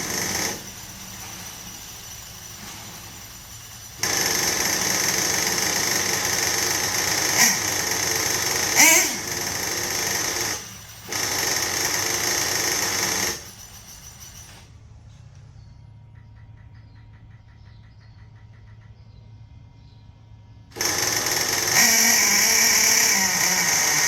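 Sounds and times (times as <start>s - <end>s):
model car engine revving: 0.0s - 0.7s, 4.0s - 13.5s, 20.8s - 24.0s.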